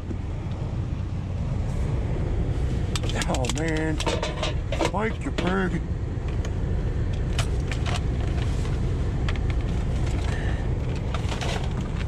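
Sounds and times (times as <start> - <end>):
car engine idling: 0.0 - 12.0
tools clicking and rattling: 3.0 - 5.6.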